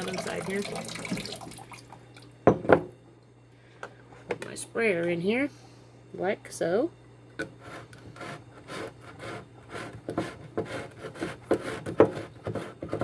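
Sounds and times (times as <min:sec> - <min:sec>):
plastic rasping on plastic: 0:07.5 - 0:13.0.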